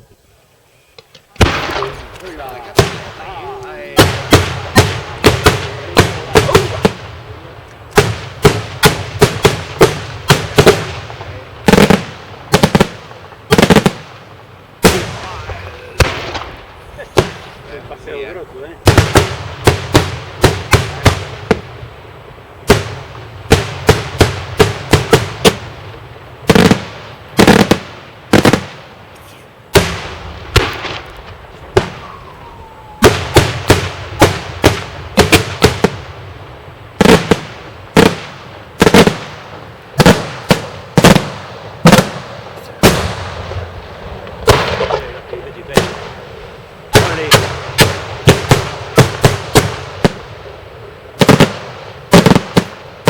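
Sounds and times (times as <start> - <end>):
fireworks bursting with loud bangs: 0.8 - 53.0
faint falling whistle: 31.9 - 33.2.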